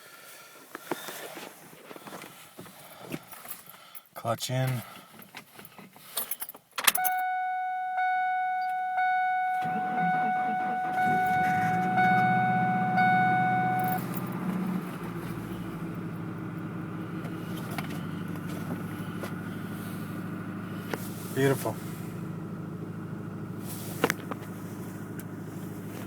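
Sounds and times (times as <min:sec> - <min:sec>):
car engine starting and idling: 0:06.8 - 0:26.0
dashboard warning chime: 0:06.9 - 0:16.4.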